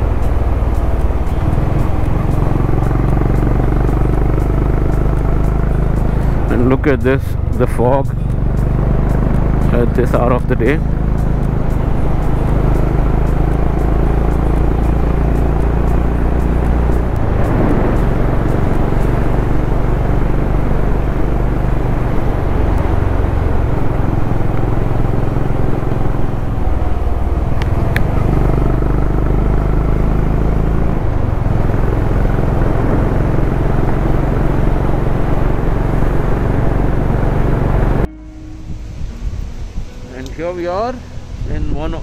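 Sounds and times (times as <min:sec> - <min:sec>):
motorcycle engine running: 0:00.0 - 0:41.5
wind rushing: 0:10.5 - 0:28.6, 0:35.7 - 0:42.0.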